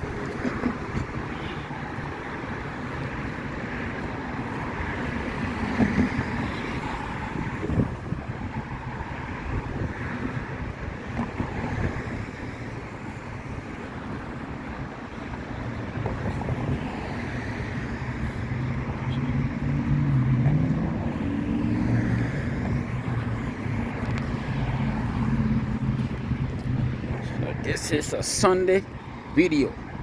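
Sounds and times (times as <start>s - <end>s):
wind on microphone: 0.0s - 27.8s
vehicle passing by: 16.0s - 30.0s.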